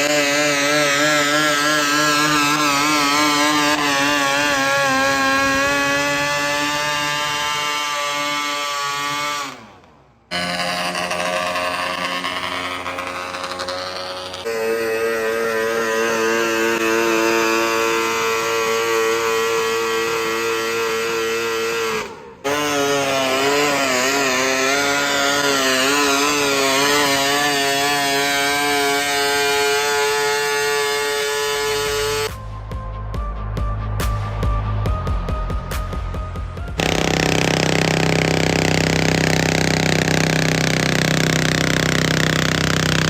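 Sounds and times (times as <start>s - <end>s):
pulling tractor engines revving: 0.0s - 32.3s, 36.8s - 43.0s.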